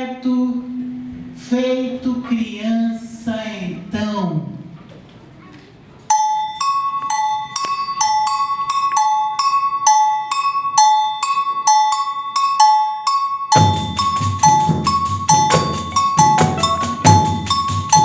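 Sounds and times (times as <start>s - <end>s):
two-pitched metal bell ringing: 6.1s - 18.0s
band with drums and bass: 13.6s - 18.0s.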